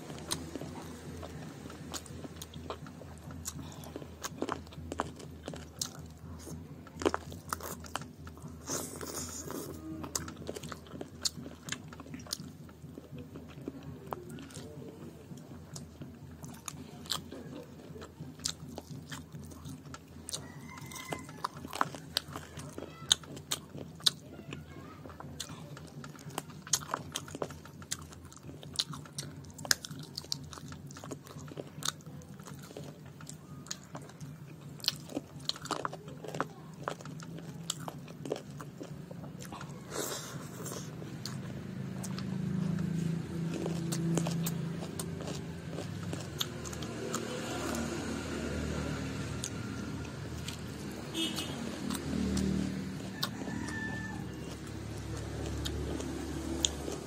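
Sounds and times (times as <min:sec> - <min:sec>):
person chewing and lip-smacking: 0:00.0 - 0:57.0
steady low hum: 0:00.0 - 0:57.0.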